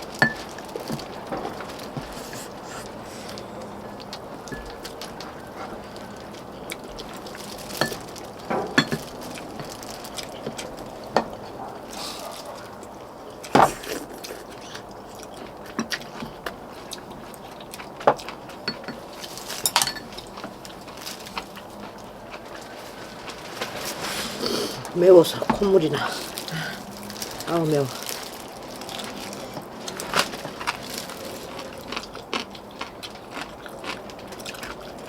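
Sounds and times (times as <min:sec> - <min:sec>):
utensils clinking against bowls: 0:00.1 - 0:12.3, 0:18.1 - 0:21.6.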